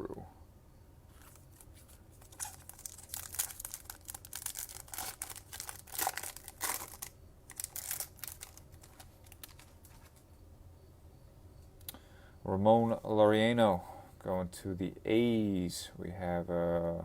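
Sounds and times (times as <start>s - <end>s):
faint handling: 1.1s - 10.3s
foil wrapper tearing and crinkling: 1.2s - 10.1s.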